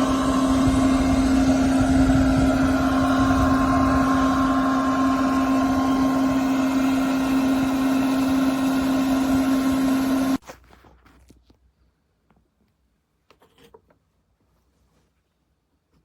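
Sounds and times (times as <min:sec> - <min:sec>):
hair dryer blower running: 0:00.0 - 0:10.4.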